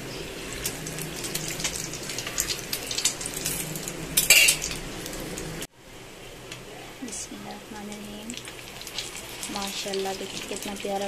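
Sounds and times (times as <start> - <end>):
food sizzling in hot fat: 0.0 - 5.7, 7.0 - 11.0
metal spoon clinking on pan: 4.2 - 4.8.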